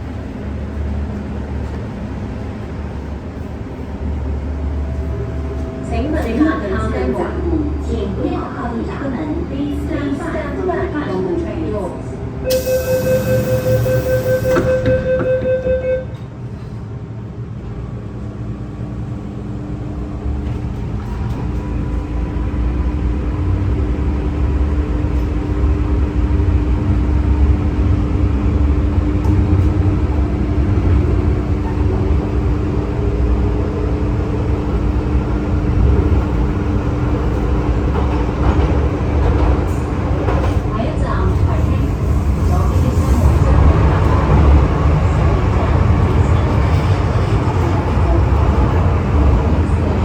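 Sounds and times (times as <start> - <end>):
train running rumble: 0.0 - 50.0
electronic door-closing warning tone: 12.5 - 16.2.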